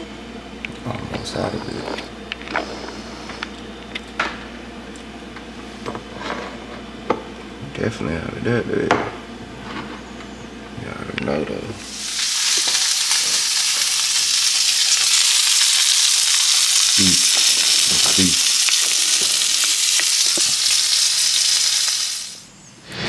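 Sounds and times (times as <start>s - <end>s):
sausages sizzling in frying pan: 11.8s - 22.5s.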